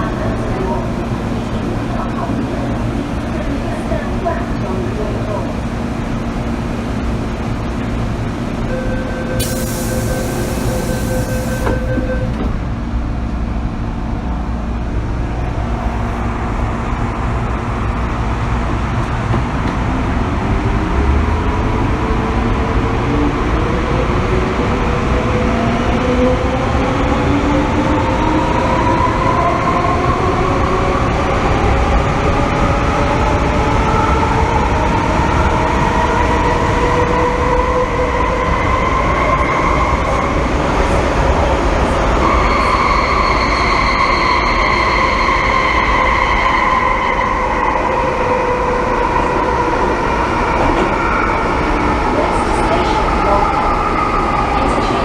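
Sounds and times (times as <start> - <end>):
rising traction motor whine: 8.8 - 12.5
train running rumble: 9.4 - 42.4.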